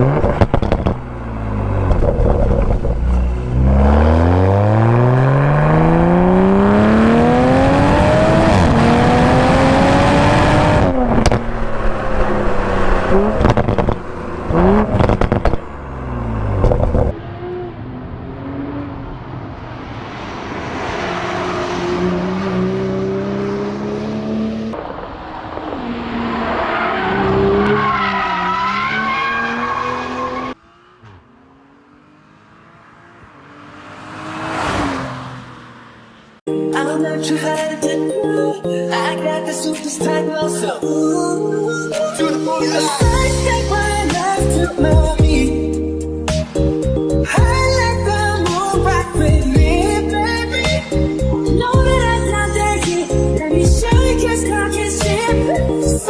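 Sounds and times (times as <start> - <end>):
exhaust crackles: 0.0 - 17.1
car engine accelerating: 0.0 - 36.5.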